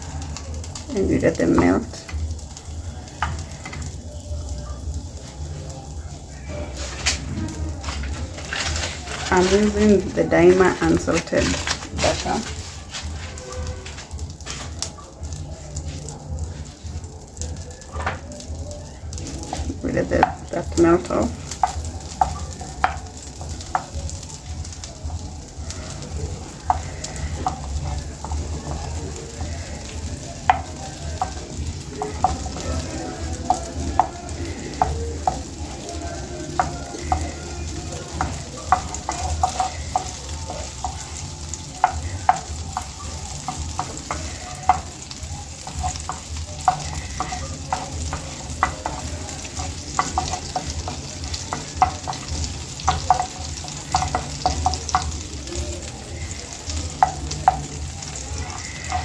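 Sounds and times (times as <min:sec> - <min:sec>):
butter sizzling in a pan: 0:00.0 - 0:59.0
utensil knocking against pan: 0:41.8 - 0:55.2.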